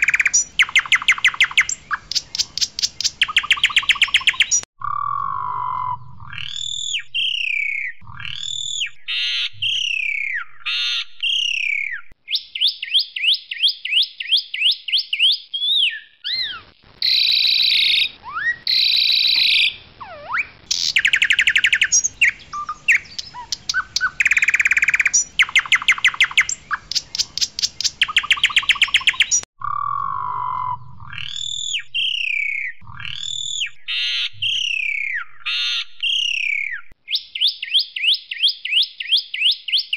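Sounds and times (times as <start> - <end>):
starling singing: 0.0 - 4.7, 15.2 - 38.1.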